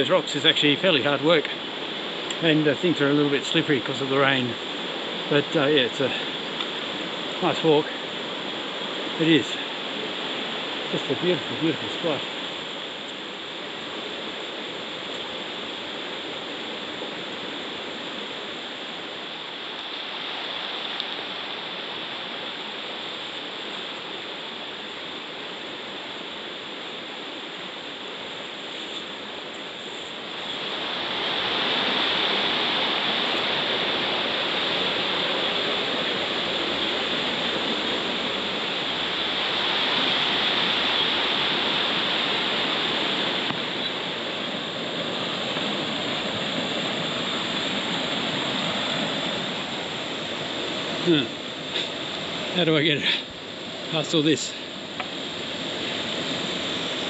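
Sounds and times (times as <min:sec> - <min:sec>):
river water rushing over rocks: 0:00.0 - 0:57.0.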